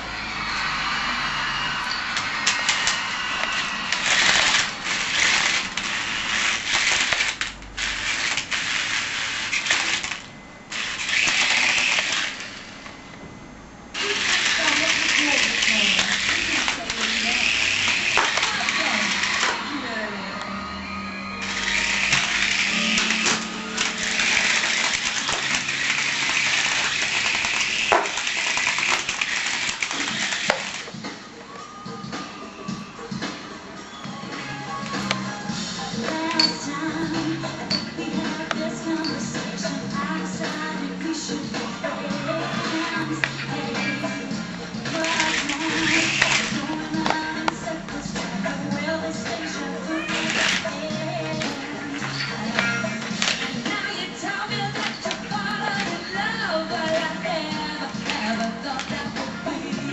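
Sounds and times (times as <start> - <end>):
toy helicopter rotor whirring: 0.7 - 12.6, 14.0 - 19.7, 21.4 - 31.0, 44.9 - 46.7, 49.9 - 50.8.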